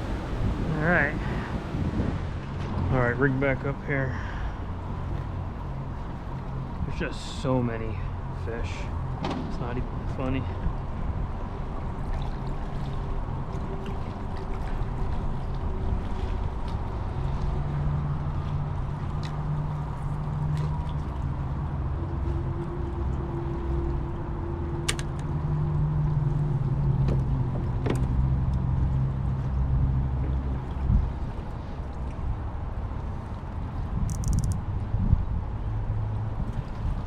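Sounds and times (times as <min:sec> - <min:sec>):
motorboat engine rumble: 0:00.0 - 0:37.0
light clicks: 0:34.1 - 0:34.6.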